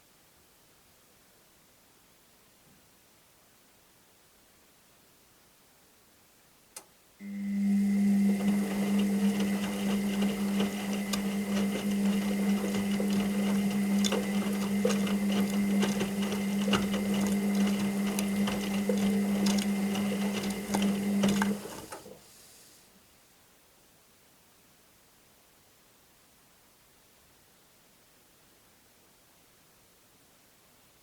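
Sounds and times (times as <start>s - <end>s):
washing machine drum motor humming: 7.2s - 22.3s.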